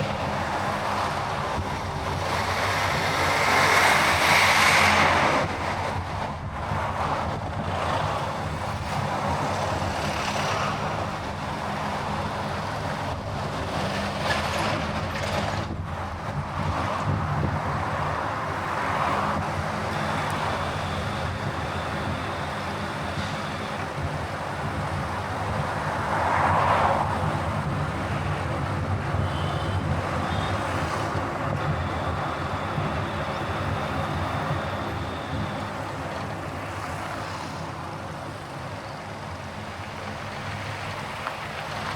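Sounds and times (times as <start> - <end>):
road and tyre rush: 0.0 - 41.9
low engine drone: 15.4 - 26.4, 27.0 - 40.6.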